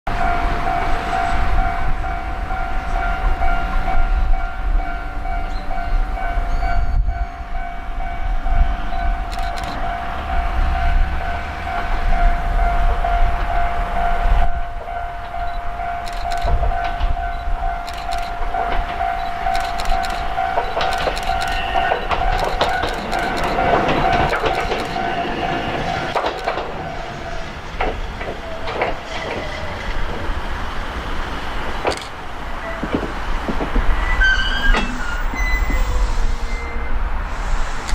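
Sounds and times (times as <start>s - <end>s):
electric railcar whine: 0.1s - 37.9s
wheels clicking over rail joints: 9.0s - 35.8s
sharp clicks: 9.3s - 9.8s, 15.4s - 25.1s, 26.1s - 26.8s, 31.8s - 32.2s.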